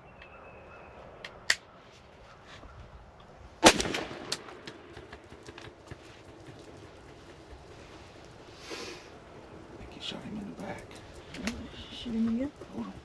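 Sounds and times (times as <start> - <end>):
gunshot with echo: 3.6 - 5.5.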